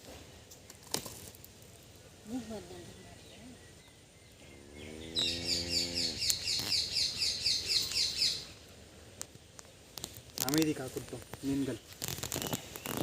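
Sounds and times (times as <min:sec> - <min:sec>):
bird chirping: 0:02.3 - 0:10.7.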